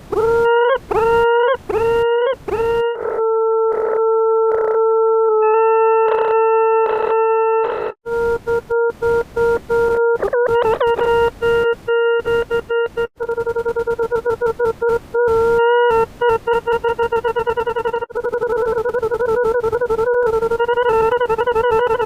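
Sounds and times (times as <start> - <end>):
steady electronic tone: 7.8 - 22.0.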